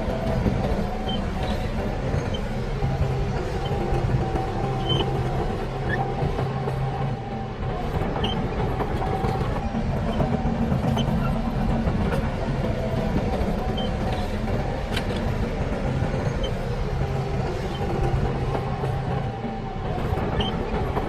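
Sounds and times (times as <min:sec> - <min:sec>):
bulldozer diesel engine running: 0:00.0 - 0:21.0
metallic clanks from tracks: 0:07.7 - 0:21.0.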